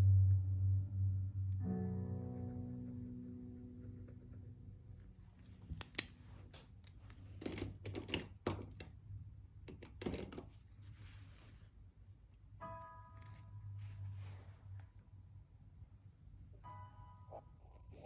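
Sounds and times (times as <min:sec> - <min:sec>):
background music note: 0:00.0 - 0:05.5, 0:12.6 - 0:15.2, 0:16.5 - 0:18.0.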